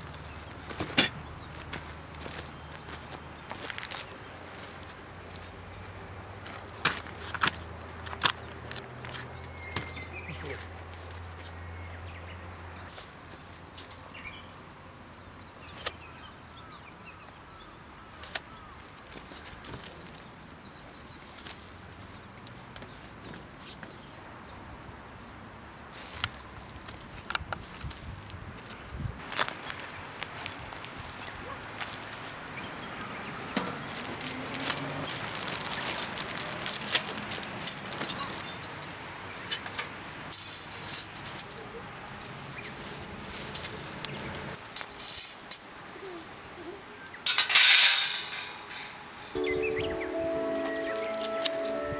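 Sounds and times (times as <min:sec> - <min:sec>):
camping gear clicking and clinking: 0:00.4 - 0:02.4, 0:29.2 - 0:32.5, 0:33.3 - 0:45.6, 0:47.2 - 0:49.5
birds chirping faintly: 0:31.2 - 0:51.9.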